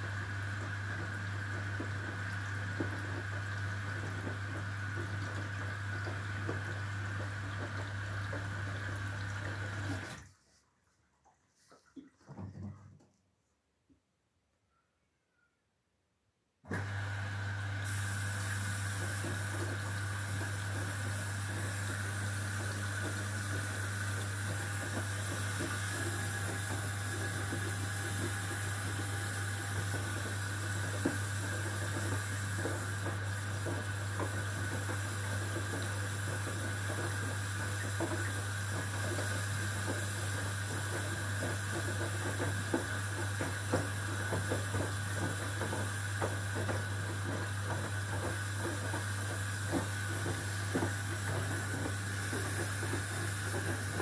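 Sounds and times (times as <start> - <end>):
water hissing into washing machine: 0.0 - 10.6, 16.7 - 54.0
washing machine hum: 0.0 - 13.4, 16.6 - 54.0
water sloshing in drum: 0.6 - 13.1.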